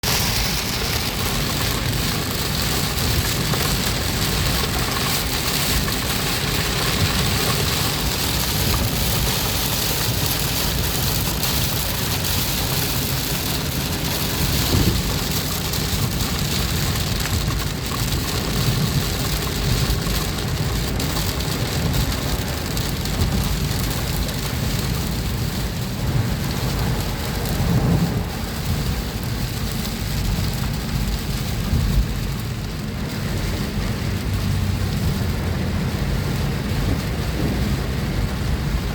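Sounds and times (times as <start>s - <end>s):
heavy rain hissing: 0.0s - 19.9s, 21.5s - 31.0s.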